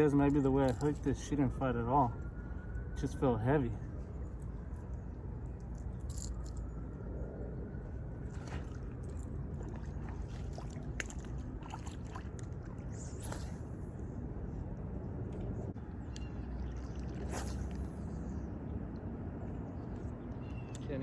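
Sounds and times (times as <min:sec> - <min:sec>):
steady low rumble: 0:00.0 - 0:20.5
river water lapping and gurgling: 0:07.8 - 0:21.0.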